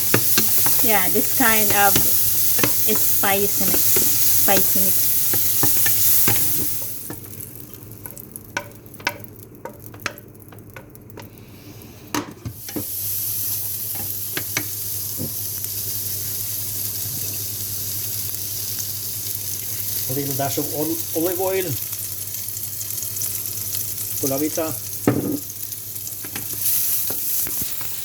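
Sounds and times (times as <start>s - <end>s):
utensils clicking against pan: 0.0s - 7.4s, 8.0s - 11.3s
food sizzling in a frying pan: 0.0s - 28.0s.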